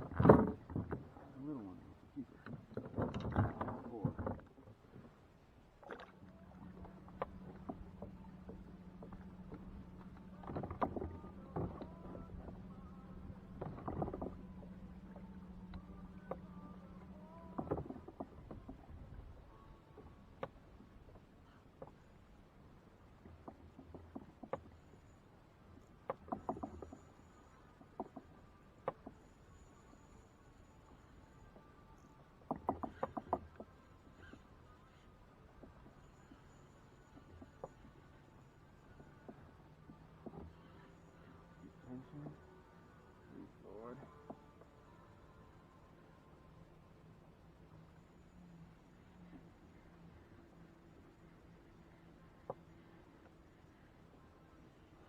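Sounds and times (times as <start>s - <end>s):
steady low hum: 5.3s - 23.2s, 26.9s - 55.0s
gear knocking against kayak hull: 6.7s - 18.9s, 32.5s - 33.7s
hard objects tapping kayak hull: 32.5s - 33.7s.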